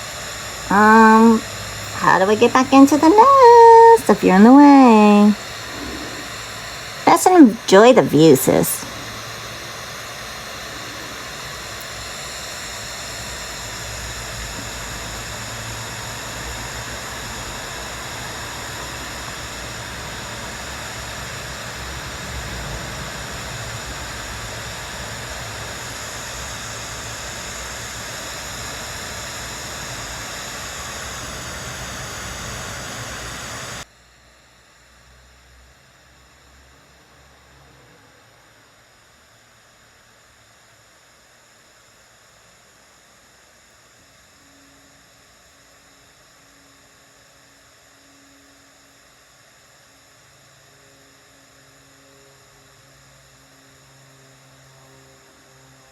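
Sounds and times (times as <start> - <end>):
high whining tones: 0.0 - 15.3.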